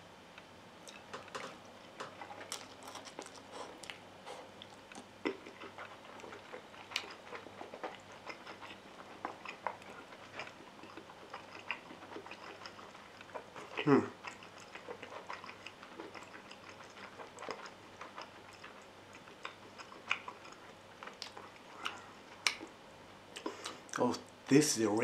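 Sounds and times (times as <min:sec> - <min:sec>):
wet chewing: 0:00.8 - 0:24.0
mouth clicks and smacks: 0:19.4 - 0:22.7.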